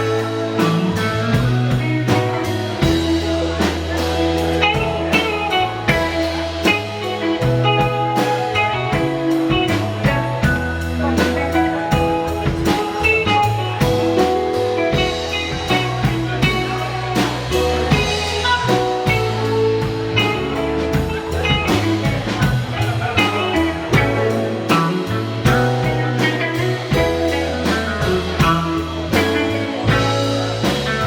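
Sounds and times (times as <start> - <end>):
bass guitar: 0.0 - 31.0
drum kit beat: 0.0 - 31.0
electric guitar lines: 0.0 - 31.0.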